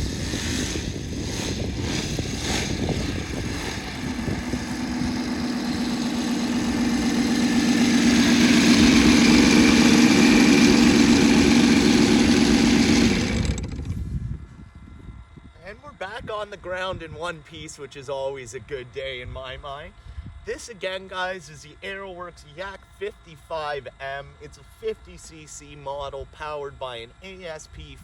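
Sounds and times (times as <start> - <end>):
model plane engine idling: 0.0 - 14.1.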